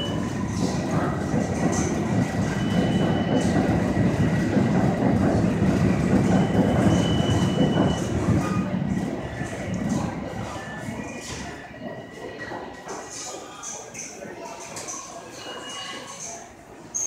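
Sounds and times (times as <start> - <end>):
train rumbling past: 0.0 - 11.6
wheel squeals: 6.2 - 8.7.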